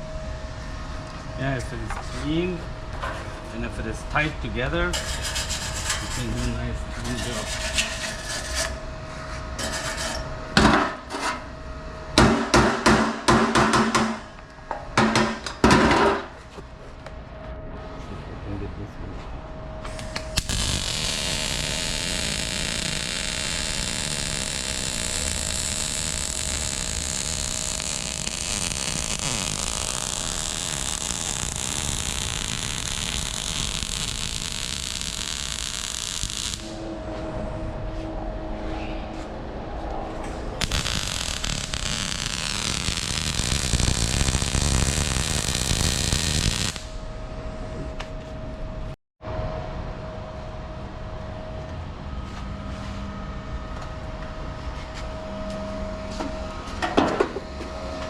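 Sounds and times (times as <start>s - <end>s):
welding crackling hiss: 19.9s - 36.8s, 40.6s - 47.0s.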